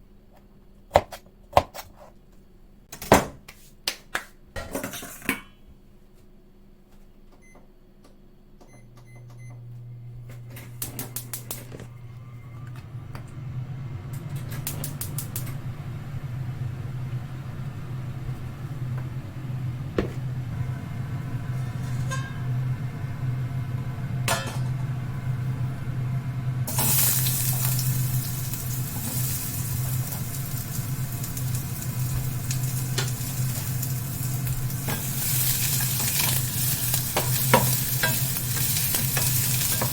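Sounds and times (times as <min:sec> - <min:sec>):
low steady hum: 0:05.7 - 0:39.9
food sizzling in a hot pan: 0:26.7 - 0:39.9.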